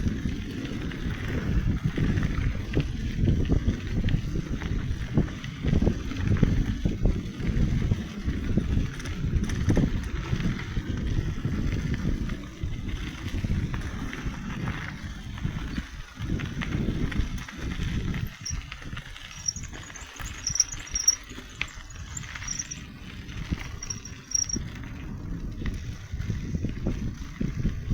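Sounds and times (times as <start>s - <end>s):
wind buffeting microphone: 0.0s - 27.9s
faint high-pitched chirps: 19.3s - 22.9s, 23.8s - 24.6s.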